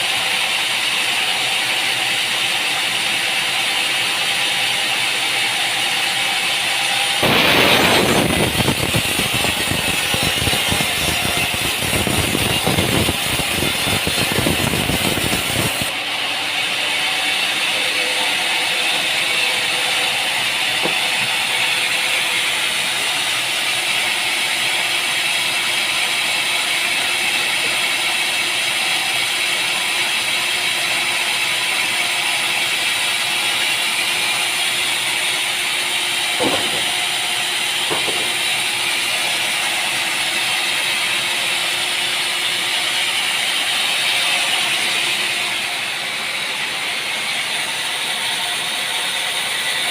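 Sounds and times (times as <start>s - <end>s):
machinery hissing: 7.1s - 15.9s, 36.1s - 40.1s.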